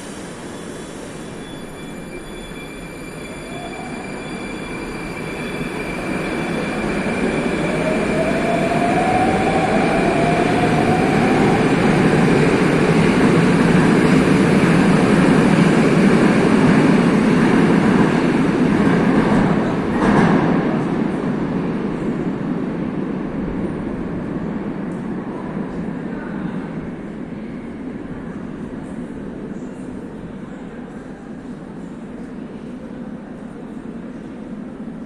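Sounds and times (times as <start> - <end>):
metro train rumbling with whine: 0.0 - 35.0.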